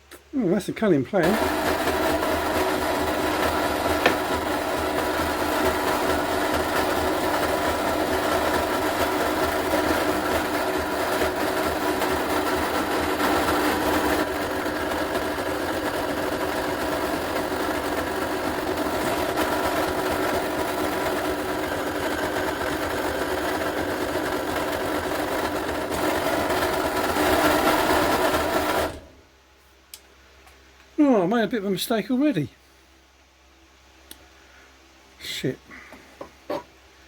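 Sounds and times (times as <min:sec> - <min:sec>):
electric drill drilling into steel: 0:01.3 - 0:29.1.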